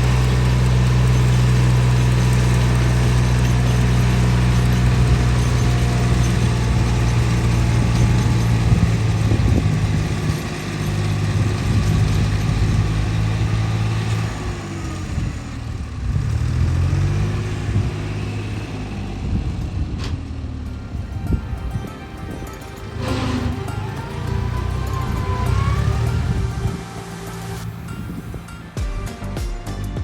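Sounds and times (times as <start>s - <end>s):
tiller engine running: 0.0s - 29.6s.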